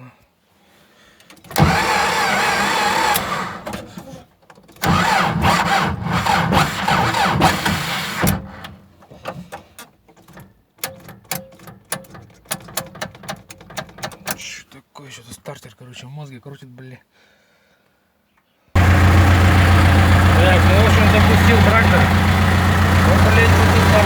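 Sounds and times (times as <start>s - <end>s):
electric starter cranking diesel engine: 1.4s - 4.2s, 4.8s - 8.9s, 18.8s - 24.0s.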